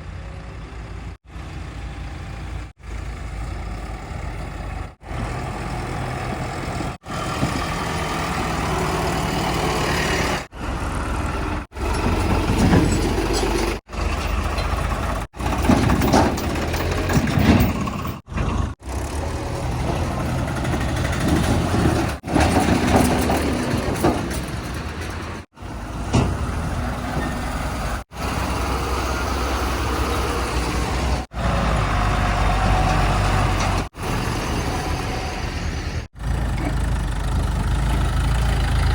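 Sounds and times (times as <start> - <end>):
diesel engines revving: 0.0 - 38.9.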